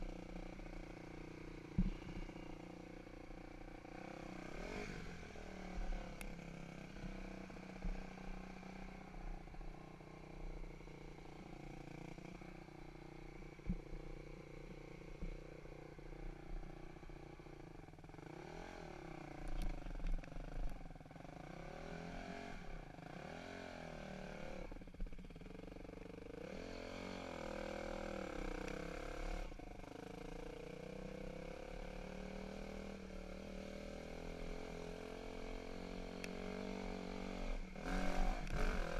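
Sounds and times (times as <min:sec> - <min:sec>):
dirt bike engine revving: 0:03.9 - 0:06.0, 0:26.3 - 0:29.6, 0:30.8 - 0:38.9.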